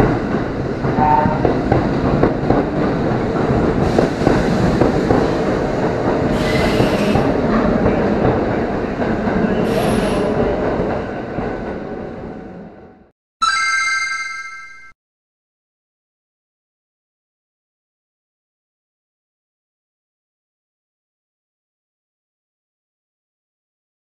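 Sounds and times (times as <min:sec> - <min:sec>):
train passing with loud rumble: 0:00.0 - 0:13.1.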